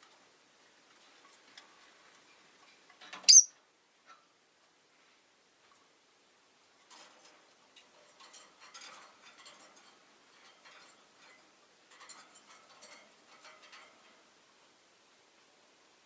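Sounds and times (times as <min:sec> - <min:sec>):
lovebirds clicking and chirping: 0:03.2 - 0:03.5.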